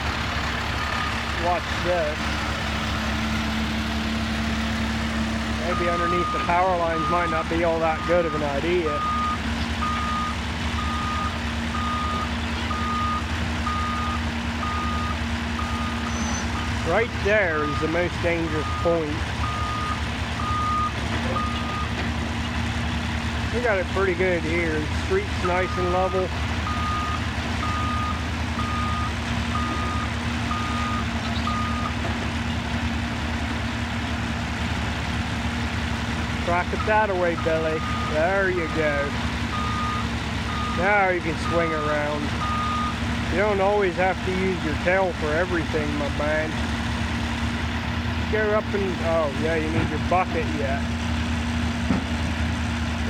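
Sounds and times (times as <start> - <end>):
diesel engine running: 0.0 - 53.0
travel alarm beeping: 9.0 - 16.4, 18.6 - 21.9, 26.7 - 31.9, 42.4 - 42.9.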